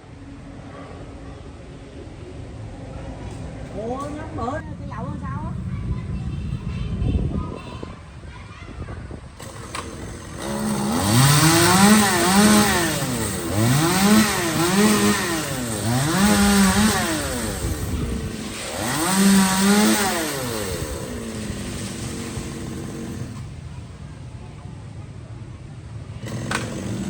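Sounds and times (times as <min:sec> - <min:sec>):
chainsaw engine revving: 0:09.4 - 0:23.6, 0:26.2 - 0:27.0.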